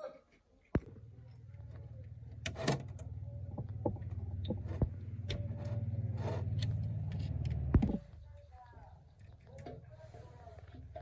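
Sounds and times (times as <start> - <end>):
sharp clicks and knocks: 0.7 - 8.2.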